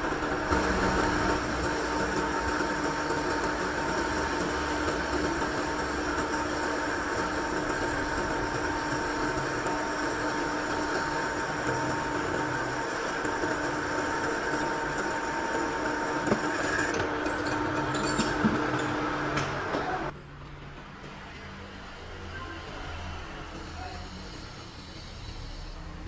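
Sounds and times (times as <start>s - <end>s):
machine whine: 0.0s - 20.2s
workshop machine humming: 0.0s - 20.2s.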